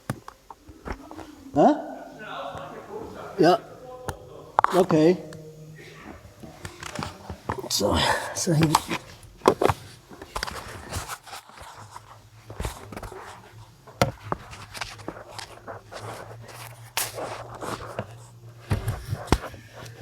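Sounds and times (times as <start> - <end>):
faint low hum: 0.0 - 20.0
hands handling equipment: 5.8 - 20.0.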